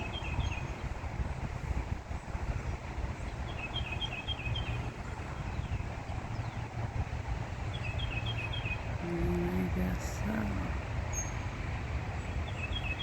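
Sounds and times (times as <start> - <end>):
bird chirping: 7.7 - 8.9, 11.1 - 11.5.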